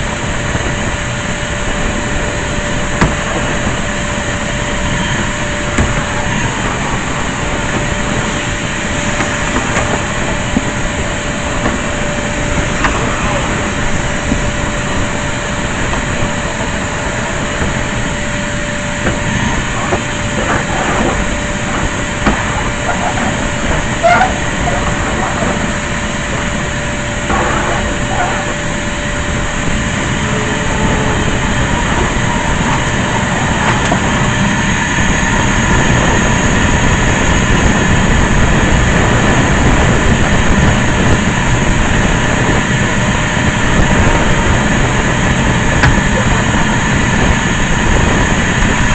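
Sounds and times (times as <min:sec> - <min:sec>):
vacuum cleaner motor running: 0:00.0 - 0:48.9.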